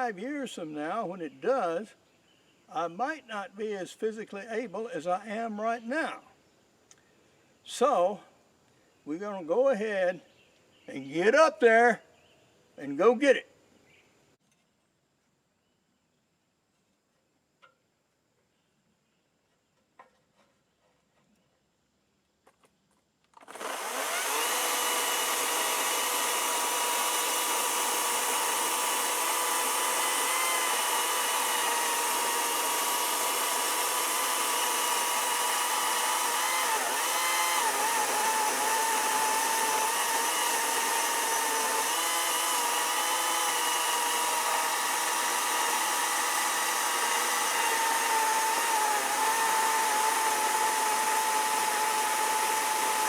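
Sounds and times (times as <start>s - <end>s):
electric chainsaw whining: 23.4s - 53.0s.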